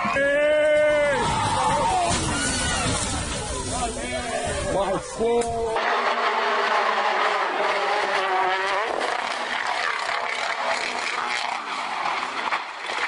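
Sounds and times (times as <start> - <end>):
rally car engine revving: 5.8 - 13.0.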